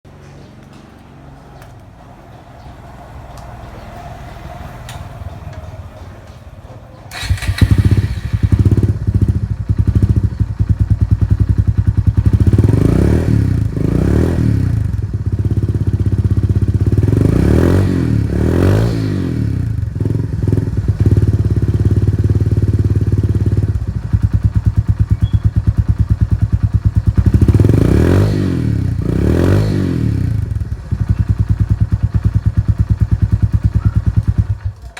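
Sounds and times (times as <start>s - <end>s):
motorcycle engine idling and revving: 0.1s - 34.9s.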